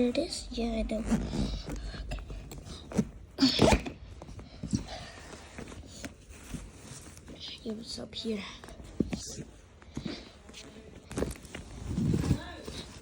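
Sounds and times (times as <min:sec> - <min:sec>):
clothes rustling in a suitcase: 0:04.2 - 0:13.0.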